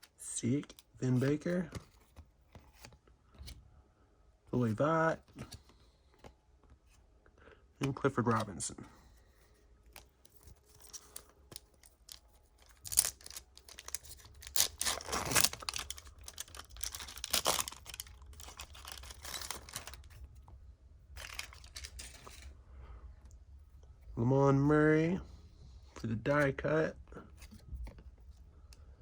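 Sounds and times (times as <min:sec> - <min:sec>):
foil wrapper tearing and crinkling: 0:10.7 - 0:20.2, 0:21.2 - 0:22.4.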